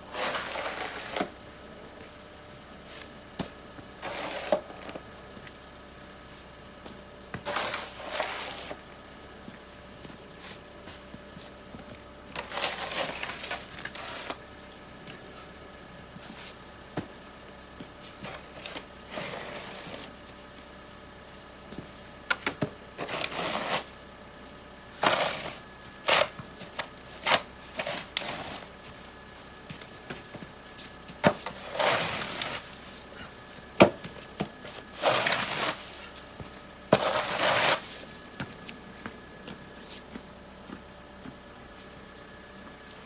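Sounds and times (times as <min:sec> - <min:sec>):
snow crunching and scraping: 0:00.0 - 0:01.4, 0:04.0 - 0:05.0, 0:07.4 - 0:08.8, 0:12.4 - 0:14.4, 0:18.1 - 0:20.2, 0:23.0 - 0:24.0, 0:25.0 - 0:29.1, 0:31.3 - 0:33.7, 0:34.5 - 0:38.8.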